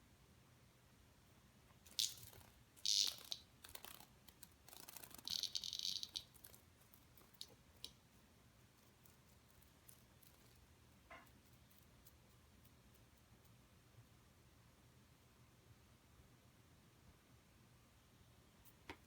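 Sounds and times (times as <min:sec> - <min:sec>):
pet chewing an insect: 0:01.9 - 0:13.1.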